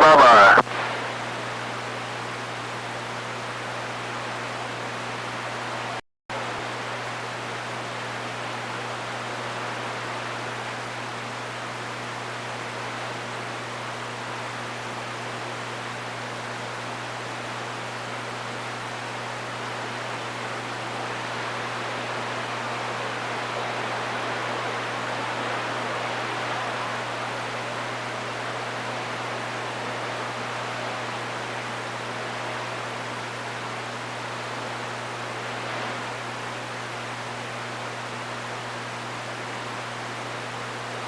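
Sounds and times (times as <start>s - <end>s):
radio static hiss: 0.0s - 2.2s, 19.3s - 39.6s.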